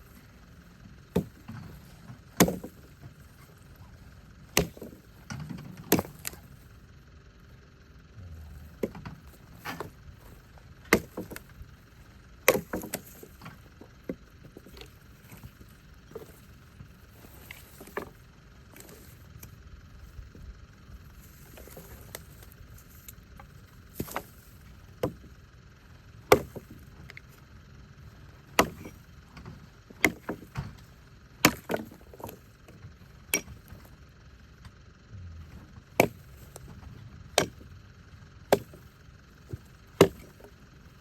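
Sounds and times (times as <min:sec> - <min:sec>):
wood chopping blows: 0:39.5 - 0:40.4.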